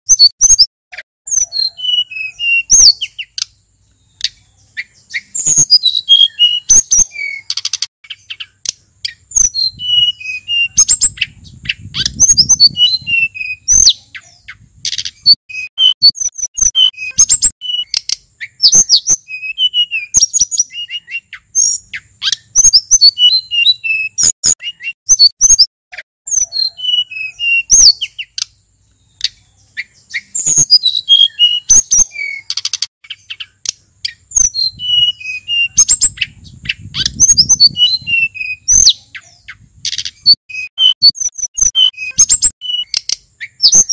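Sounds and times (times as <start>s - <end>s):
bird singing chirps and whistles: 0.1s - 0.7s, 1.3s - 25.7s, 26.3s - 43.9s.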